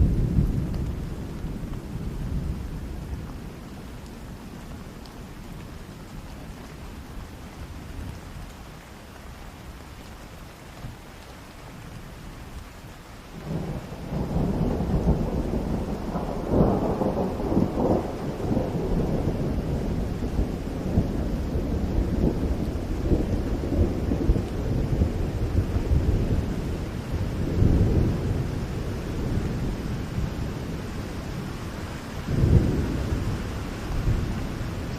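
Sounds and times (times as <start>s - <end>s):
thunder rumbling: 0.0s - 6.3s, 13.4s - 34.9s
rain falling: 0.0s - 34.9s.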